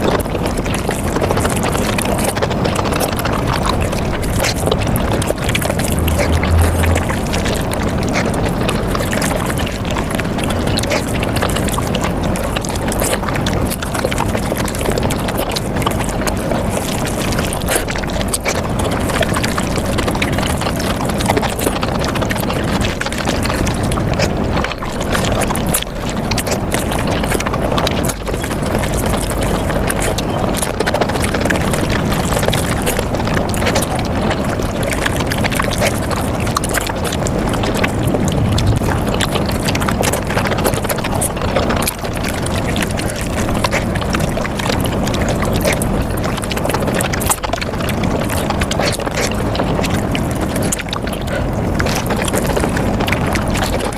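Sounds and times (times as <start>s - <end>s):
sped up chewing and smacking: 25.1s - 40.1s, 41.8s - 53.9s.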